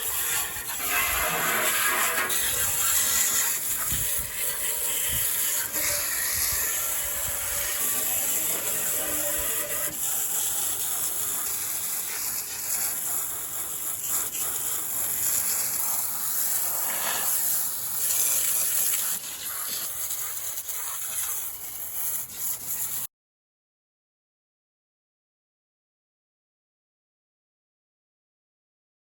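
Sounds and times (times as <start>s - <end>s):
water spraying: 0.0s - 23.1s.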